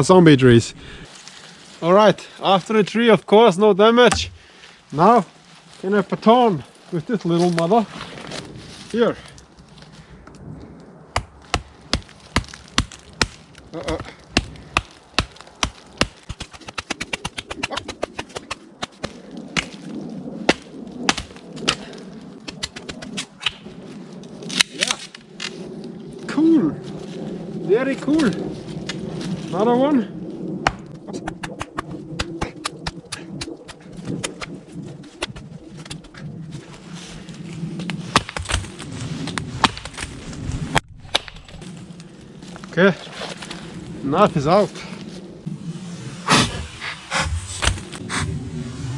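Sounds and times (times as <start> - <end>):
wooden baton striking knife: 4.1 - 4.5
wood splitting: 4.1 - 4.7, 11.2 - 19.7, 37.9 - 41.6, 46.3 - 48.3.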